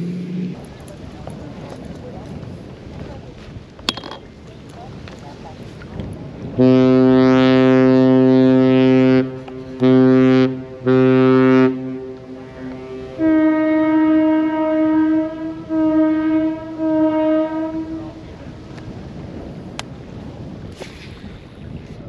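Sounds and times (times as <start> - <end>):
deep boat horn blasts: 6.4 - 19.0
higher-pitched boat horn blasts: 6.6 - 18.2.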